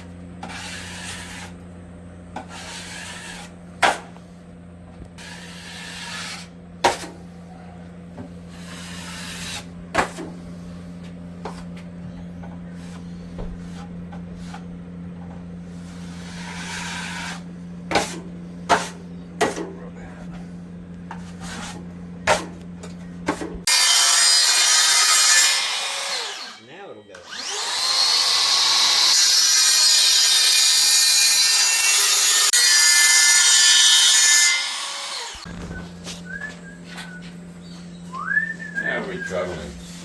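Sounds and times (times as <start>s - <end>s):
steady low hum: 0.0s - 23.7s, 35.4s - 40.0s
hand tool scraping and rubbing: 0.4s - 1.6s, 2.4s - 4.2s, 5.2s - 7.4s, 8.3s - 11.8s, 15.7s - 22.6s.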